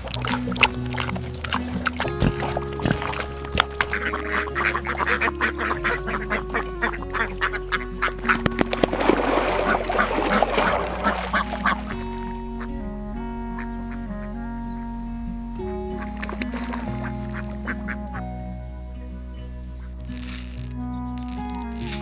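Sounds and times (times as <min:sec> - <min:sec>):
poultry calling: 0:00.0 - 0:12.8
background music with held tones: 0:00.0 - 0:22.0.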